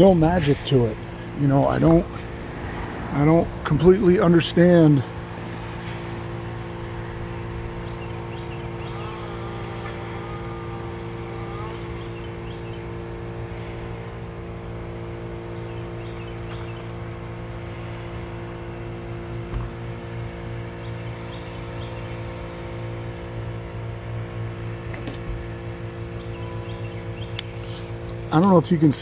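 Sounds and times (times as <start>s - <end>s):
motor hum: 0.0s - 29.0s
small birds chirping: 7.8s - 10.4s, 11.0s - 13.2s, 14.9s - 17.9s, 20.5s - 23.4s, 25.6s - 28.6s.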